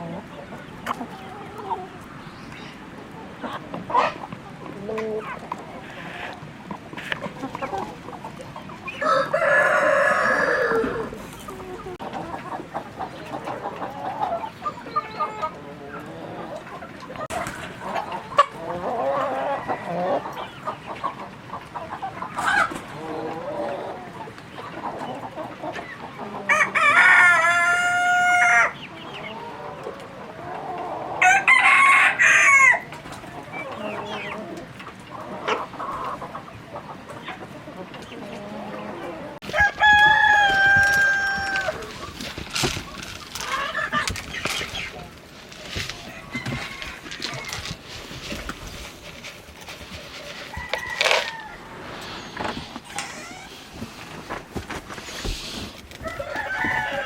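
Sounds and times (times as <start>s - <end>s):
hens clucking: 0.0s - 57.0s
rooster crowing: 9.0s - 11.2s, 31.2s - 32.9s, 39.4s - 41.9s, 46.0s - 47.6s, 50.5s - 51.8s, 56.0s - 57.0s.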